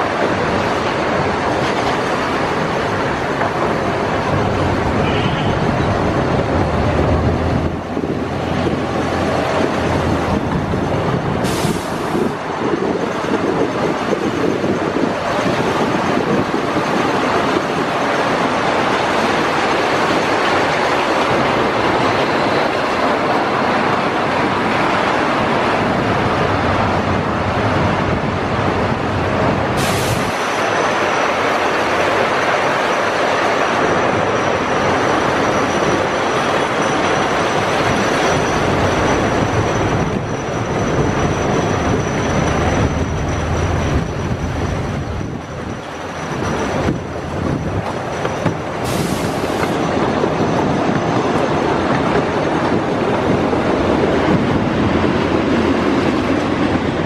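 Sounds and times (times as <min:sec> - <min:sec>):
track clacks: 0:00.0 - 0:57.0
train wheels rumbling on rails: 0:00.0 - 0:57.0
high steady squeal: 0:29.8 - 0:51.9.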